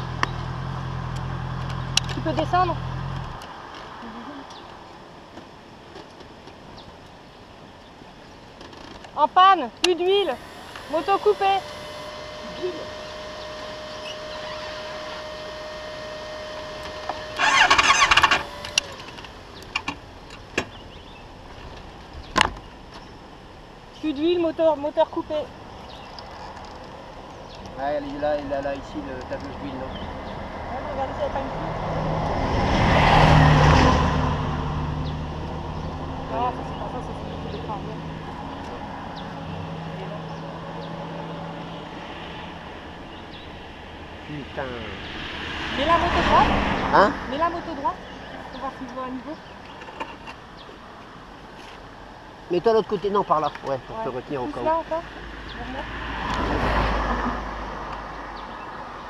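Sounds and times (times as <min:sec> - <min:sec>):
vehicle engine running: 0:00.0 - 0:03.4, 0:09.8 - 0:21.2, 0:33.1 - 0:50.3
motorcycle starter motor cranking: 0:09.9 - 0:20.0
steady high tone: 0:10.1 - 0:19.0.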